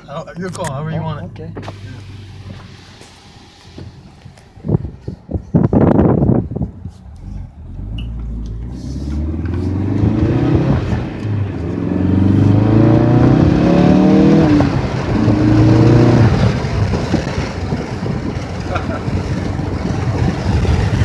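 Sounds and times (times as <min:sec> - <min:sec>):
car engine accelerating hard: 0:07.1 - 0:21.0.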